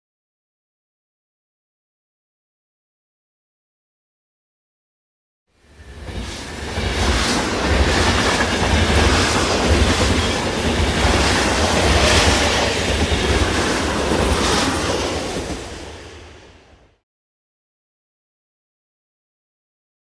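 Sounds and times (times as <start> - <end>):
train rumbling on track: 5.6 - 17.0
train clatter: 5.8 - 16.0.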